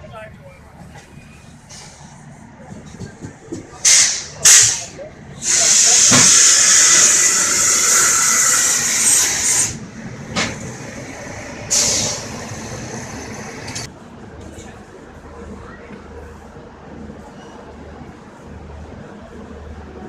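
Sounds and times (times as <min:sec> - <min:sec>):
train air hissing: 0:01.6 - 0:02.3, 0:03.8 - 0:13.9.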